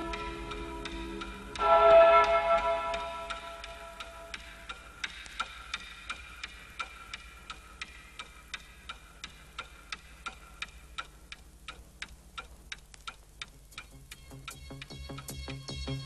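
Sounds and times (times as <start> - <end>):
held synth chord: 0.0 - 4.7
clock-like ticking: 0.0 - 15.6.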